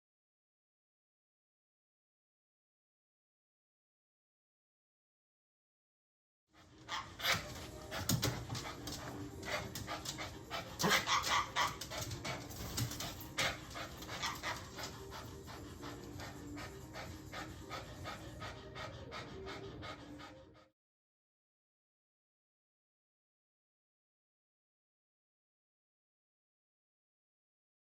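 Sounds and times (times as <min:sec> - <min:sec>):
dog panting: 0:06.6 - 0:20.8.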